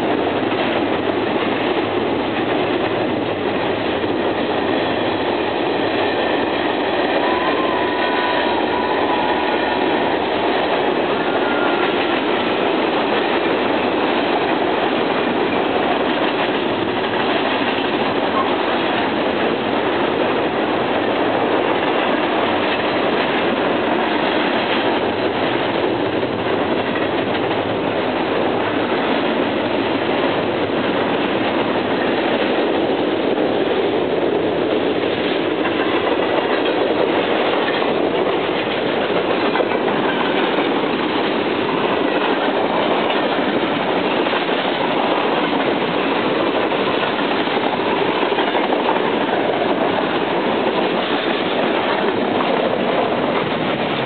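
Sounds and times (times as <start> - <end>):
train wheels clattering on rails: 0.0 - 54.0.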